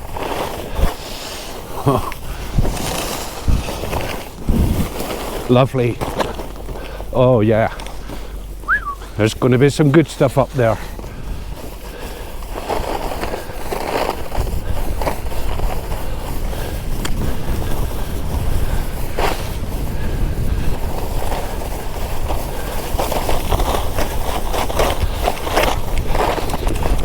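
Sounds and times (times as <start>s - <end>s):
skis scraping over snow: 0.0s - 27.0s
wind on microphone: 1.8s - 6.7s, 14.0s - 27.0s.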